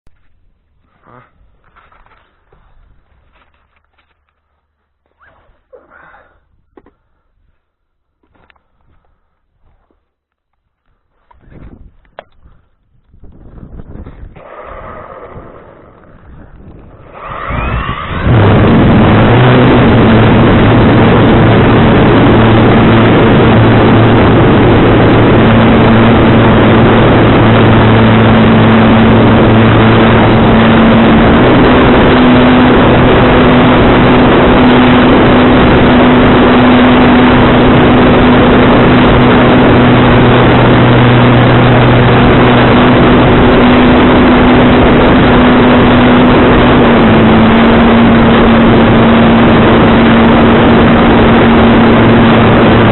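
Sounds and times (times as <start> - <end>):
low hum: 0.1 - 52.9
strong wind on microphone: 11.4 - 52.9.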